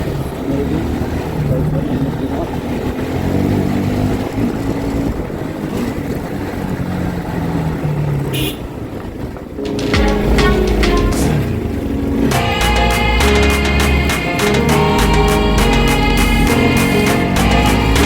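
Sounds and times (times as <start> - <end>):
motorcycle engine revving: 0.0 - 9.6, 12.2 - 18.0
wind and road noise: 0.0 - 10.4
background music: 9.6 - 18.0.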